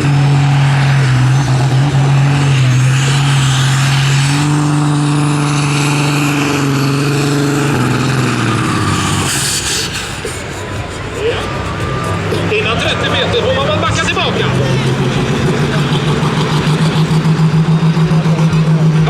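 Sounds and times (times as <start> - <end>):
tractor engine at high revs: 0.0 - 19.0.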